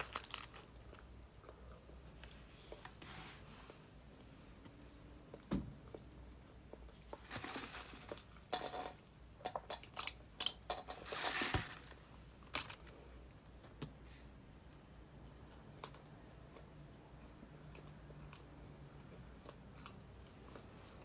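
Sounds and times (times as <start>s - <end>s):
food wrapper crinkling: 0.0s - 0.8s, 10.0s - 12.9s.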